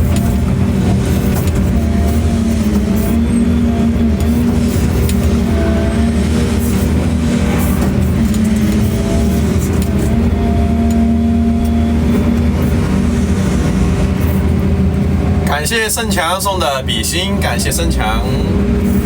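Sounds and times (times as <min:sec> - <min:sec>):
machine engine running: 0:00.0 - 0:19.0.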